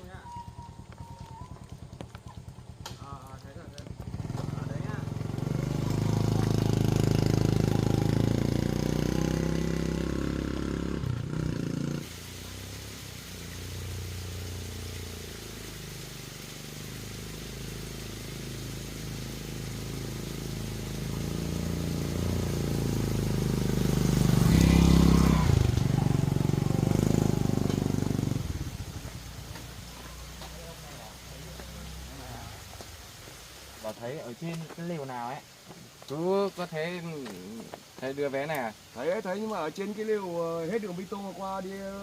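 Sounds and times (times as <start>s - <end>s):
engine running: 0.7s - 32.5s.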